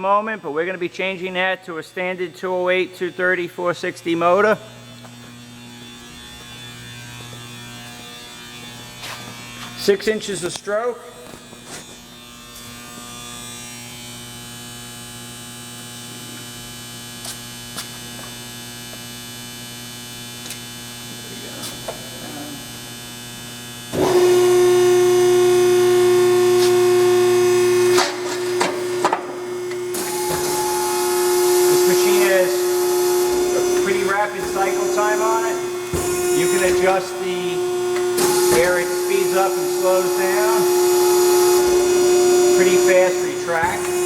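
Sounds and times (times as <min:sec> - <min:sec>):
hydraulic pump motor humming: 0:20.4 - 0:44.0
loud hydraulic whine: 0:23.9 - 0:44.0.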